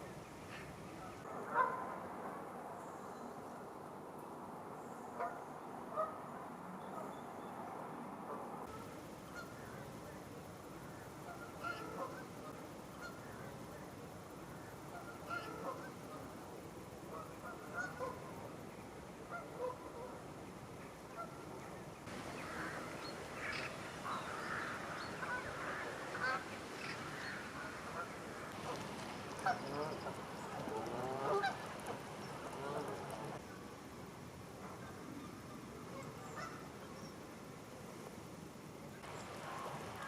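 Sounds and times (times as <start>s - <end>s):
geese honking: 11.2s - 13.2s, 14.9s - 16.0s, 22.1s - 33.4s.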